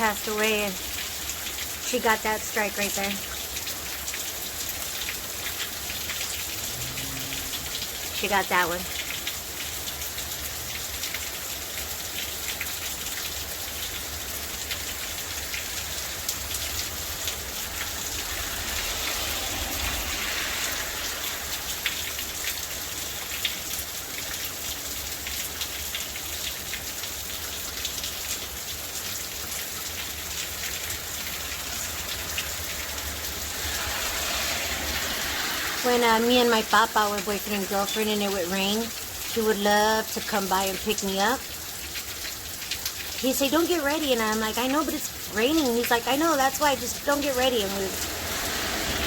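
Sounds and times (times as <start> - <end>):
raindrop ticks: 0.0 - 20.0, 35.8 - 48.1
steady rain falling: 0.0 - 49.0.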